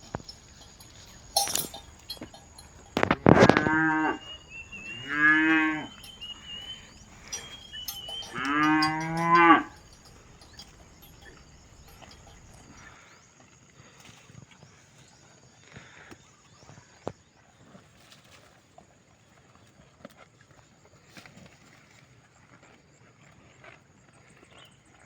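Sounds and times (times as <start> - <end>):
cows mooing: 0.0 - 12.8.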